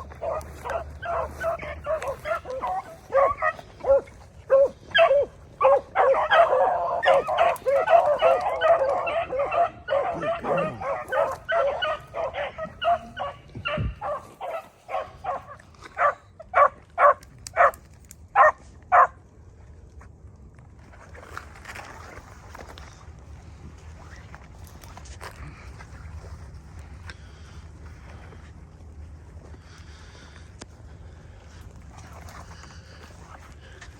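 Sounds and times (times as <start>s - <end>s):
dog barks: 0.0s - 19.2s
hounds baying: 0.0s - 19.2s.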